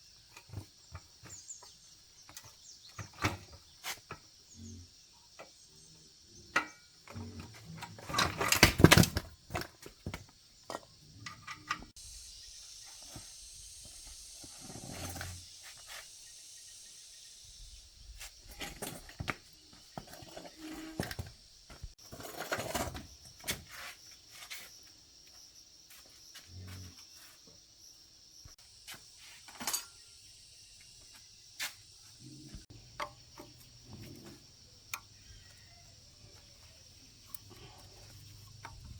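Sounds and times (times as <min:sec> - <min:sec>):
steady high hiss: 0:12.0 - 0:18.4.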